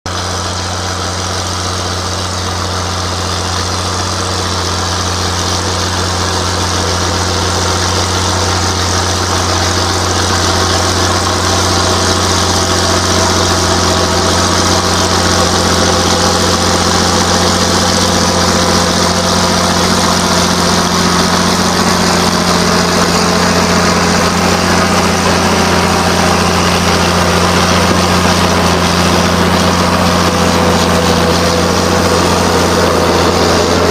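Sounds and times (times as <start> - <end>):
tractor diesel engine humming: 0.0 - 33.9.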